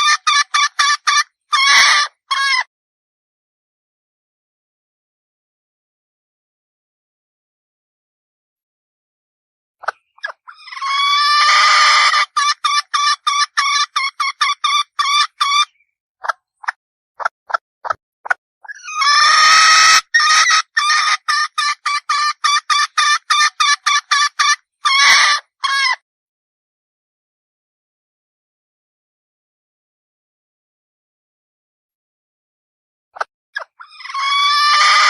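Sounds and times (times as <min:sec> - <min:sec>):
hen calling and clucking: 0:00.0 - 0:02.7, 0:09.8 - 0:17.6, 0:18.6 - 0:26.0, 0:33.2 - 0:35.0.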